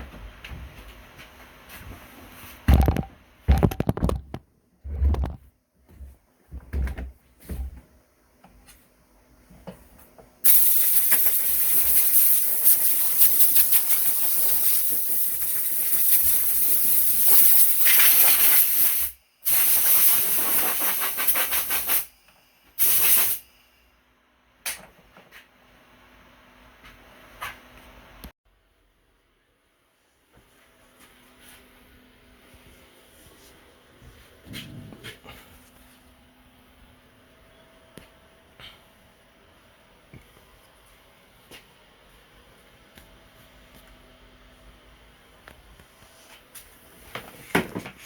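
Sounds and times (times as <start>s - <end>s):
knocks and clicks: 2.7s - 4.4s.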